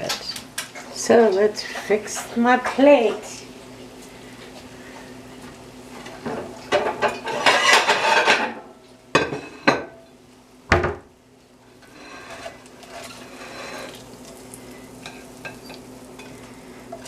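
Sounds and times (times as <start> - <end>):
dishes and utensils clattering: 6.1 - 10.0, 15.0 - 17.0.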